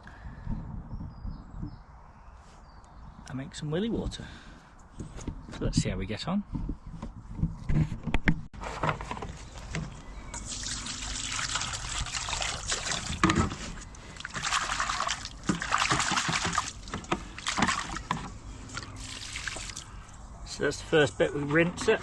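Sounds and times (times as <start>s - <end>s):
water trickling and sloshing: 9.1s - 20.4s.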